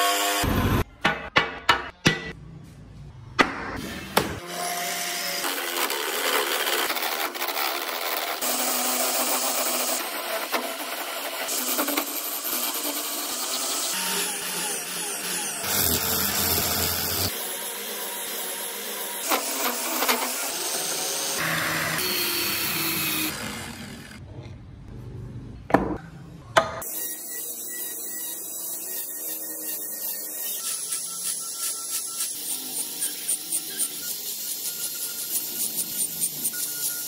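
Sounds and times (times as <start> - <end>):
power tools running: 4.4 - 24.2.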